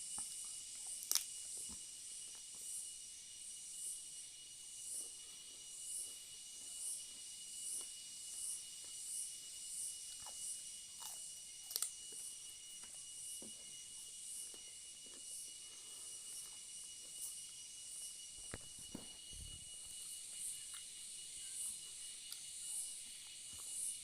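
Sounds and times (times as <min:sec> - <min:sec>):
pulsing high hiss: 0:00.0 - 0:24.0
person chewing vegetables: 0:10.1 - 0:13.6.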